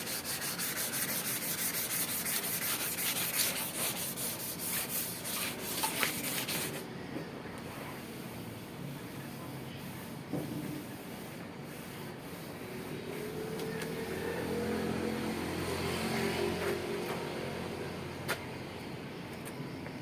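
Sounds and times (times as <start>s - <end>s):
vehicle engine passing: 13.0s - 18.3s.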